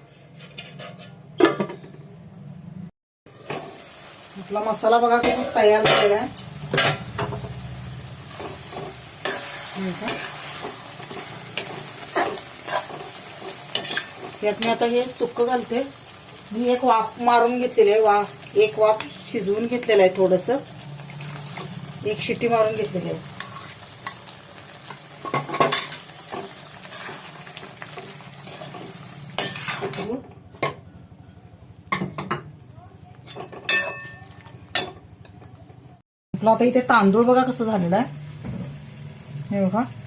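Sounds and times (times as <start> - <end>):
spoon scraping a pan: 0.0 - 1.3, 8.3 - 14.9, 23.2 - 24.3, 24.9 - 30.2, 33.2 - 35.0
sauce sizzling in a pan: 3.3 - 29.8, 37.4 - 40.0
metal utensils clinking on pots: 5.1 - 7.4, 8.4 - 15.2, 25.2 - 30.8, 33.1 - 35.6.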